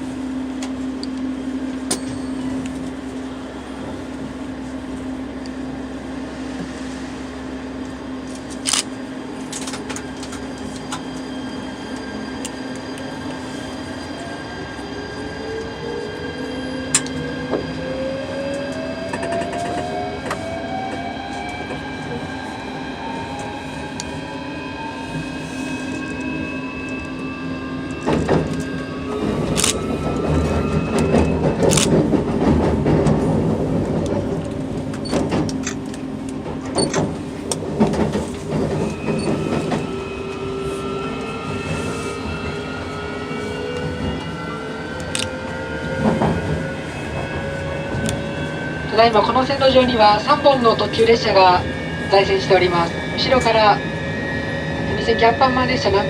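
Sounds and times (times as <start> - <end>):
train wheels clattering: 27.9 - 40.5.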